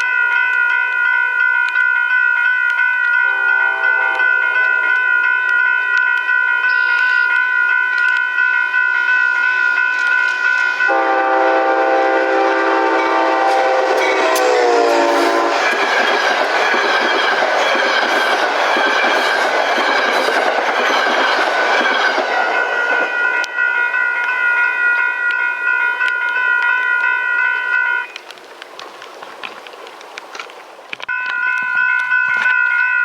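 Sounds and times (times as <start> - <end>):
steady high-pitched tone: 3.1 - 26.3
train horn: 3.2 - 5.1, 10.9 - 15.9
train wheels clattering on rail: 12.9 - 23.6.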